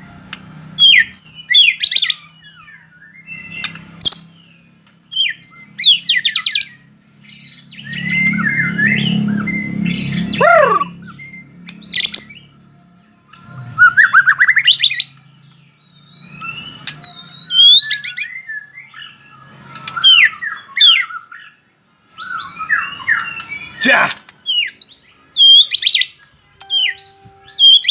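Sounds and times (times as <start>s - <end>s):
bird singing whistled phrases: 16.1s - 19.1s, 24.5s - 27.9s.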